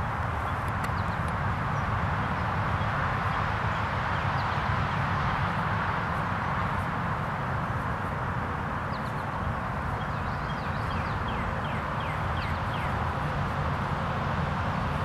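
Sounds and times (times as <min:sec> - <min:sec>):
outdoor background rumble and hiss: 0:00.0 - 0:15.0
bird chirping: 0:09.9 - 0:13.0.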